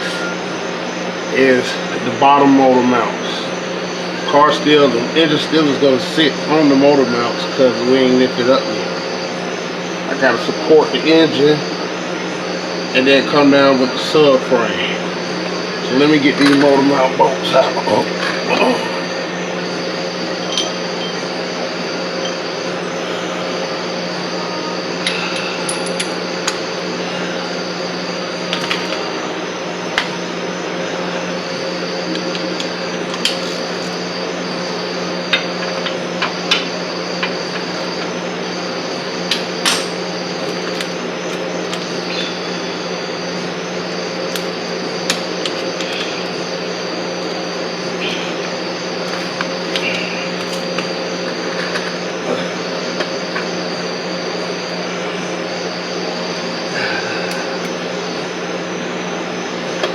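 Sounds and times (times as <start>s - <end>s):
steady background hum: 0.0s - 59.9s.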